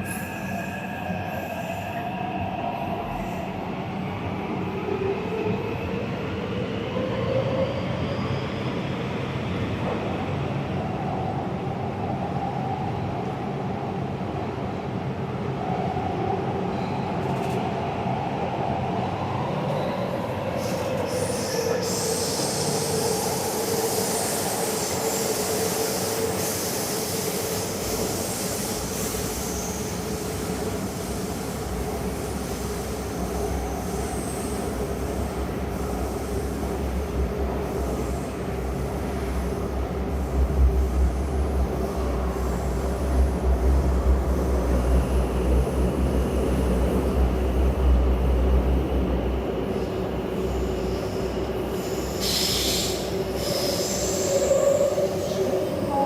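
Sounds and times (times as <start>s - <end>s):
train rumbling: 0.0s - 56.0s
train whine: 15.5s - 56.0s
high hiss: 49.8s - 56.0s.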